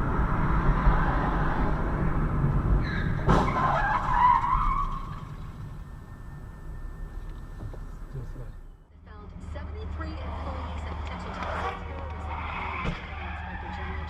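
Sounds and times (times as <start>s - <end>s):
car driving noise: 0.0s - 14.0s
tyres screeching: 2.8s - 8.8s, 10.2s - 14.0s.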